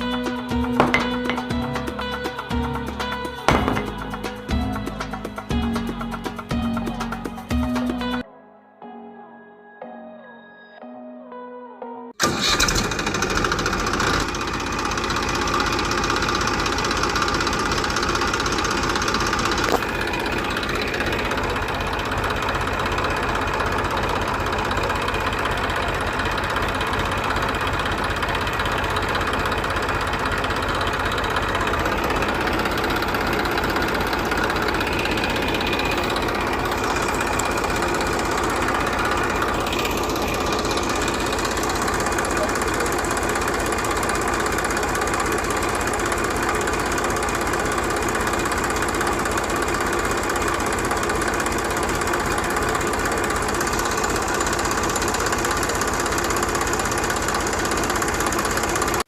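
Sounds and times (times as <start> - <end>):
small engine knocking: 12.2 - 59.0.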